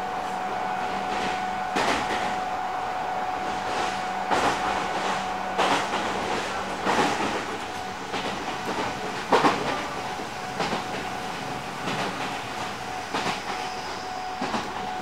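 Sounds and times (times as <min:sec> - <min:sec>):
train running noise: 0:00.0 - 0:15.0
train wheels clacking over rail joints: 0:03.7 - 0:15.0.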